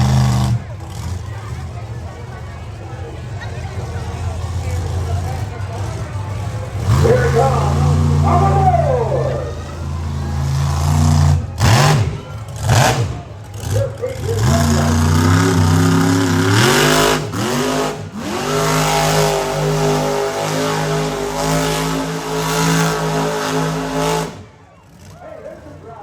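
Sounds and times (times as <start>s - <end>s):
truck engine revving hard: 0.0s - 26.0s.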